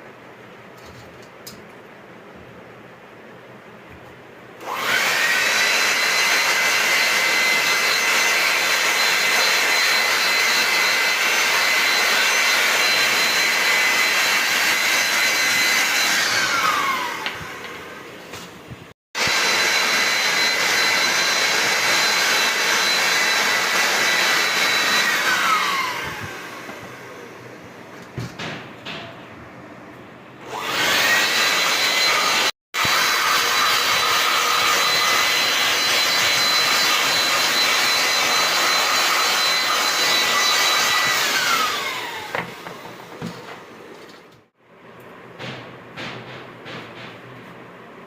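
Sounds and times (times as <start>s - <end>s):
electric tool motor whining: 4.6s - 18.2s, 19.2s - 27.4s, 30.4s - 43.4s.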